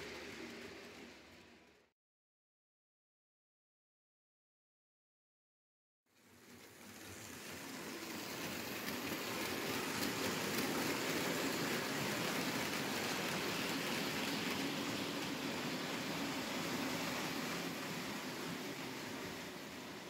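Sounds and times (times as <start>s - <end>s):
model locomotive motor: 0.0s - 1.9s, 6.2s - 20.0s
model train wheels rattling: 6.5s - 19.9s.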